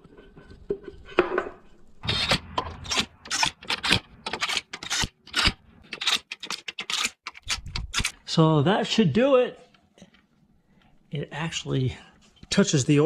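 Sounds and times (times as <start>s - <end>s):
metal rasping and scraping: 0.0s - 8.2s.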